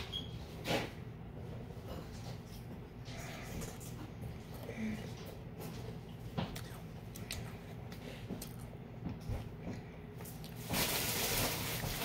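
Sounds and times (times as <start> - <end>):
person quietly chewing: 3.1 - 10.6.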